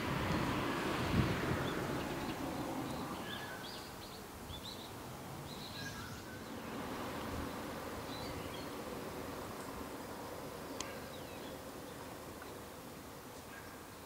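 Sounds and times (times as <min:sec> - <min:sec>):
steady background hiss: 0:00.0 - 0:14.0
small birds chirping: 0:00.2 - 0:14.0.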